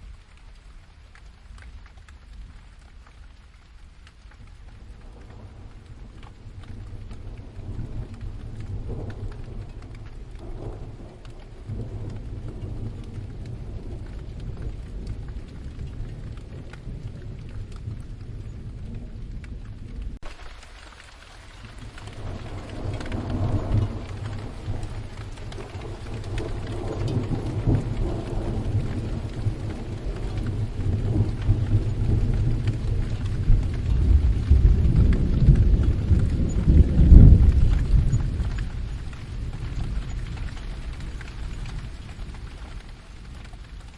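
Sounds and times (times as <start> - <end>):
rain falling: 0.0 - 43.9
thunder rumbling: 2.3 - 43.9.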